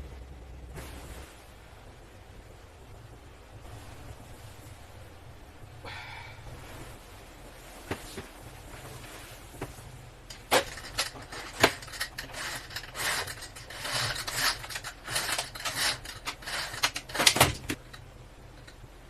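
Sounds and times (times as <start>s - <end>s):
rubbing and scraping: 6.6s - 18.8s.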